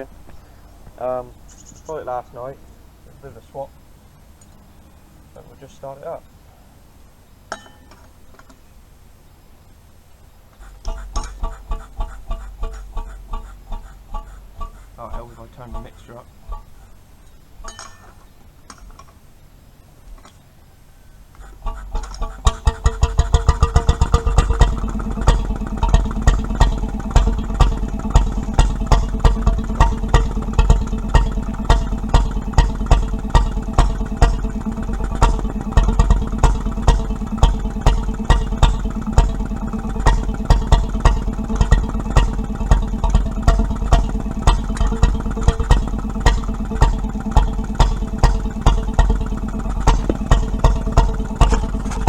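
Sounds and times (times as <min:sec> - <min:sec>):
stationary engine running: 0:10.6 - 0:16.8, 0:21.4 - 0:52.0
sharp exhaust beat: 0:10.6 - 0:17.7, 0:21.4 - 0:52.0.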